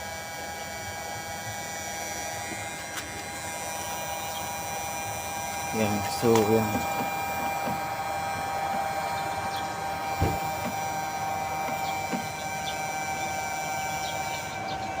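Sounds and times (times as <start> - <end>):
exhaust fan motor humming: 0.0 - 15.0
faint thump: 10.2 - 10.7.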